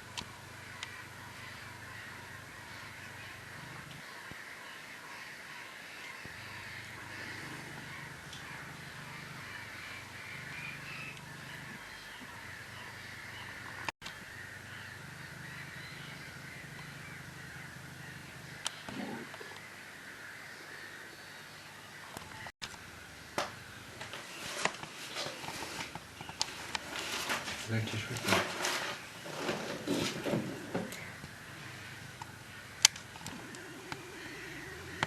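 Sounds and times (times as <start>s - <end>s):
chorus of birds calling: 0.0s - 35.0s
harsh crow-like calls: 0.3s - 21.4s, 29.4s - 35.0s.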